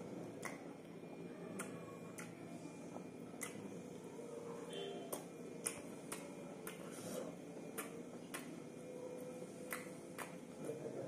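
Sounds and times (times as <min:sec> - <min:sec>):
faint steady hum: 0:00.0 - 0:11.0
person chewing with mouth clicks: 0:01.5 - 0:02.4, 0:03.4 - 0:03.8.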